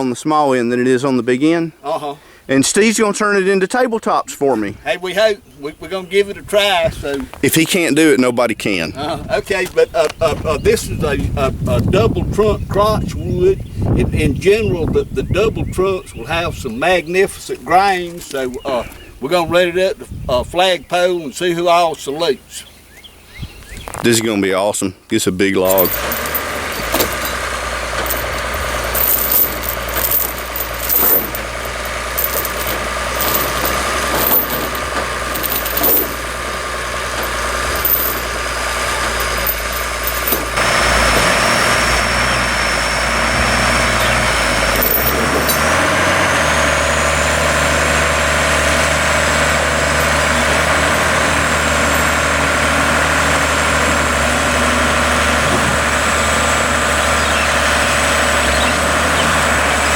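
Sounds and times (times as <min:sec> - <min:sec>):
diesel engine hum: 0:25.6 - 0:59.9
metal clanks and rattles: 0:25.7 - 0:42.1, 0:43.9 - 0:46.0, 0:49.3 - 0:52.6
loud steady machine noise: 0:25.7 - 0:59.9.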